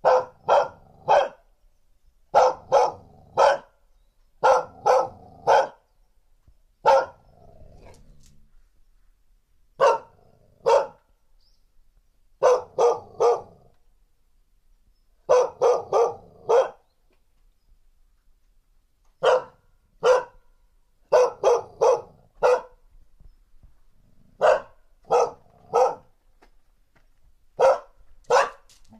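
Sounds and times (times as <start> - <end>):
dog barking sharply: 0.0 - 1.4, 2.3 - 3.7, 4.4 - 5.8, 6.9 - 7.2, 9.8 - 11.0, 12.4 - 13.5, 15.3 - 16.8, 19.2 - 20.4, 21.1 - 22.8, 24.4 - 26.1, 27.6 - 28.7.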